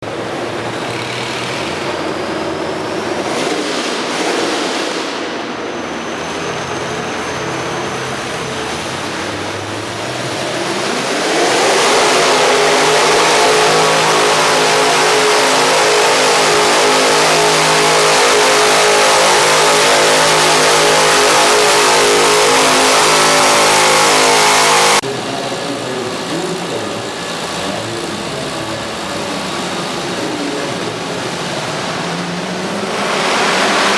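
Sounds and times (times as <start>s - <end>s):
tractor engine revving: 0.0s - 33.9s.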